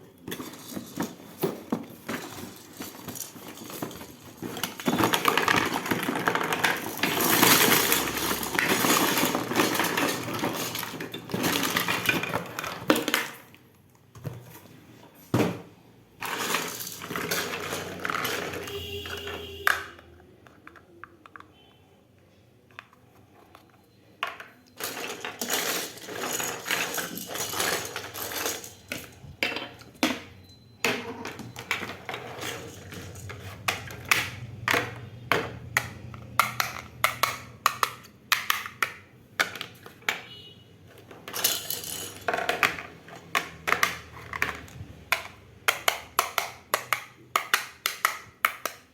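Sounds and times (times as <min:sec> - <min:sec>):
packaging rustling: 0:00.1 - 0:12.8
small plastic pieces clicking: 0:30.9 - 0:40.2, 0:40.9 - 0:48.9.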